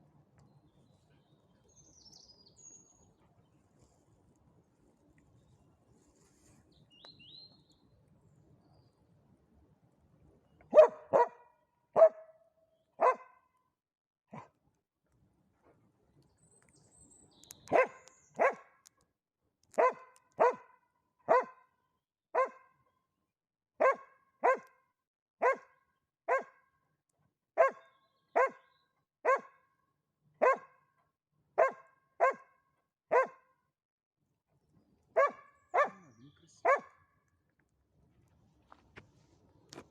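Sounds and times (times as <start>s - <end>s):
dog barking: 10.7s - 12.4s, 13.0s - 13.4s, 14.3s - 14.5s, 17.7s - 18.7s, 19.8s - 21.7s, 22.4s - 22.7s, 23.8s - 24.7s, 25.4s - 26.6s, 27.6s - 29.6s, 30.4s - 30.8s, 31.6s - 33.5s, 35.2s - 37.1s.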